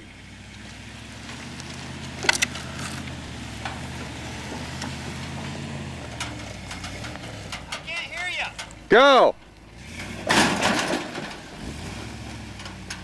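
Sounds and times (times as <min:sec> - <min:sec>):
truck engine running under load: 0:00.0 - 0:13.0
clatter of sharp knocks: 0:10.2 - 0:11.4.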